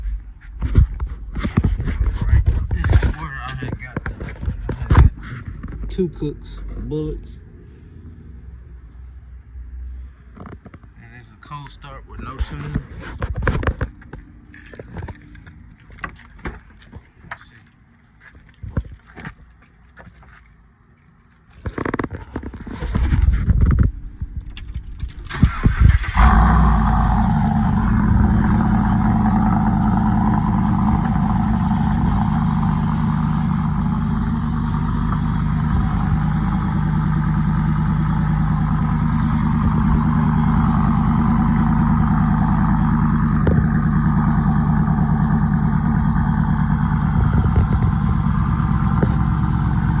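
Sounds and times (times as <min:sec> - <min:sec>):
engine idling: 0:23.1 - 0:50.0
engine starter cranking: 0:24.6 - 0:28.8.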